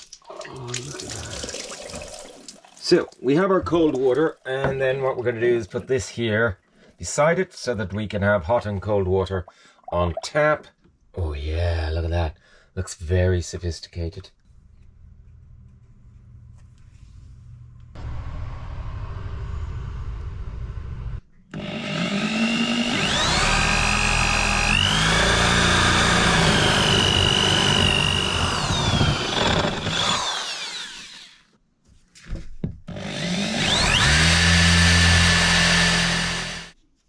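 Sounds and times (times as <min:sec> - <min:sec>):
small electric motor whining: 0:19.6 - 0:31.5, 0:32.9 - 0:36.8.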